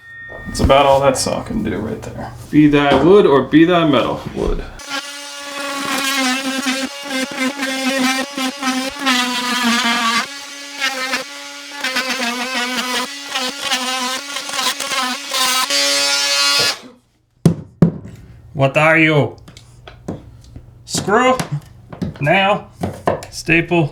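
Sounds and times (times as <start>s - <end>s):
power saw cutting wood: 4.8s - 17.0s.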